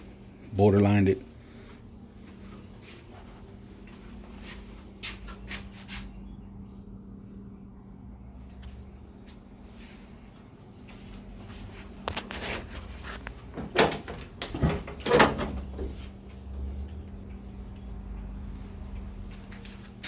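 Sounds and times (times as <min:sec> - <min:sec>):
knocks and bumps of handling: 0:12.1 - 0:16.1.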